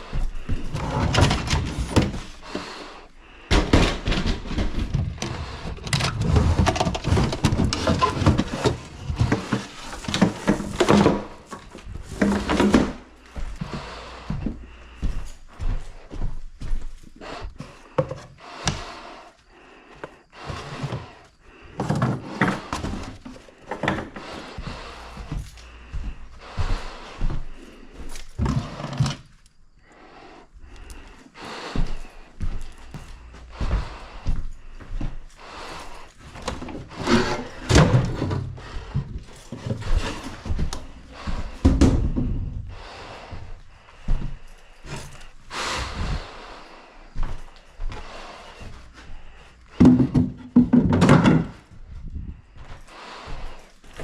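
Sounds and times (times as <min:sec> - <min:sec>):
hard objects knocking and scraping: 0:00.7 - 0:02.8, 0:03.5 - 0:13.2, 0:49.7 - 0:51.6.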